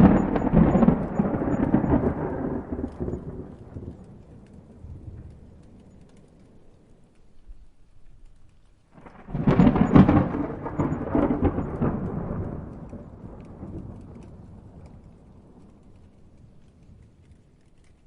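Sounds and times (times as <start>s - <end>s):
thunder rumble: 0.0s - 8.1s, 9.0s - 18.0s
rain: 0.0s - 18.0s
thunderclap with crackling cracks: 0.0s - 18.0s.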